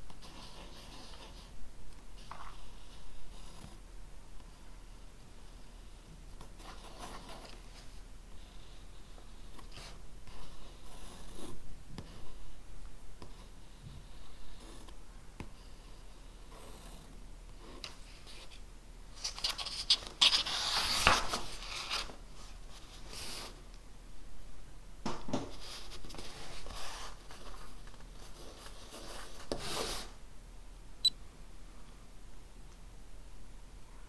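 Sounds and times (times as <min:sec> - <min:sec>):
pen scratching on paper: 0:08.4 - 0:12.4.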